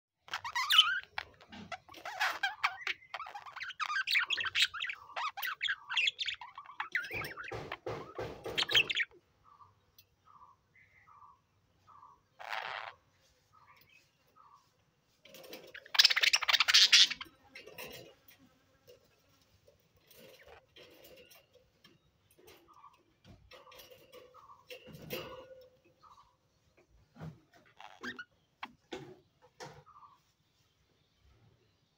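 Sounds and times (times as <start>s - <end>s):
budgerigars chirping and chattering: 0.3s - 14.7s, 15.4s - 18.0s
budgerigars chattering: 8.5s - 13.0s.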